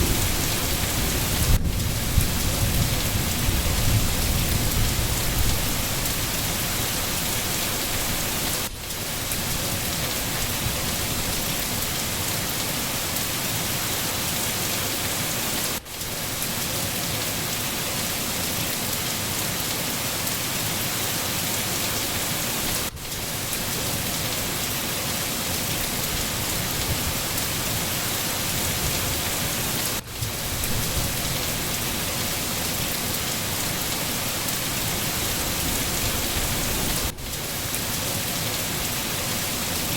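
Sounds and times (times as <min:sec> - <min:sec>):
distant thunder rumble: 0:00.0 - 0:05.9
heavy rain: 0:00.0 - 0:39.9.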